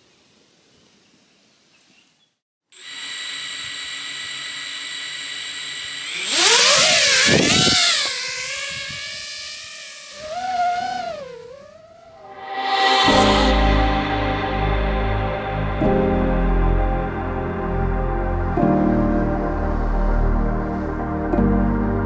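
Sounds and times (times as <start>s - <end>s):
quadcopter motors whining: 2.8s - 12.9s.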